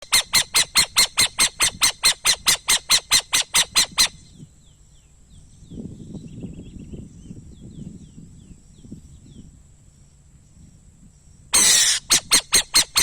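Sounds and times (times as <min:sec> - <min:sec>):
owl screeching calls: 0:00.0 - 0:04.2, 0:11.6 - 0:13.0.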